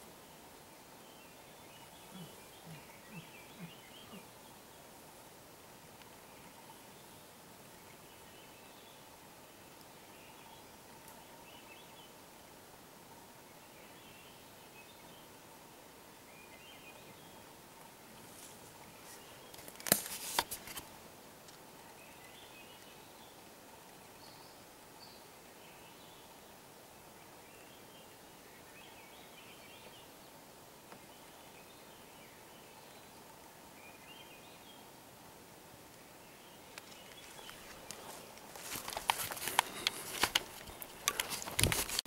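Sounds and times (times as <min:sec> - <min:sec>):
low hiss: 0:00.0 - 0:42.0
faint small birds chirping: 0:00.4 - 0:05.1, 0:16.2 - 0:35.1, 0:35.8 - 0:42.0
rustling: 0:18.2 - 0:21.6, 0:36.7 - 0:42.0.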